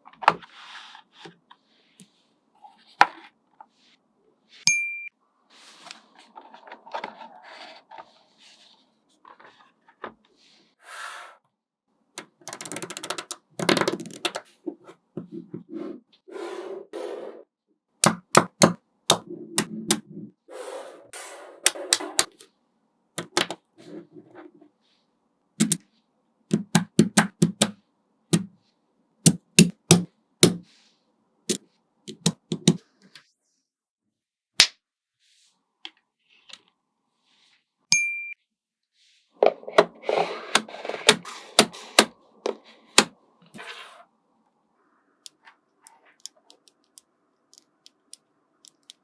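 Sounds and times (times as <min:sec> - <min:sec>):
magnetic balls clicking together: 0:12.2 - 0:14.4, 0:23.2 - 0:23.6, 0:25.6 - 0:25.8, 0:26.5 - 0:27.8, 0:32.1 - 0:32.8, 0:46.2 - 0:49.0.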